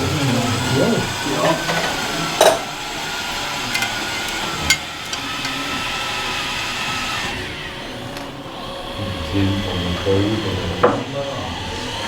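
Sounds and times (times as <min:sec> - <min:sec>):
sharp metallic clicks and knocks: 0:03.7 - 0:05.6.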